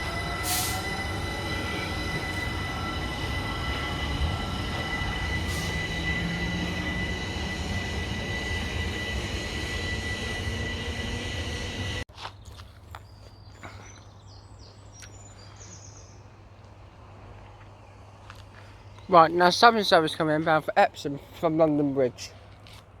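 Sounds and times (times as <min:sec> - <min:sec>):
train wheels noise: 0:00.0 - 0:12.0
electric train high whine: 0:00.0 - 0:12.1.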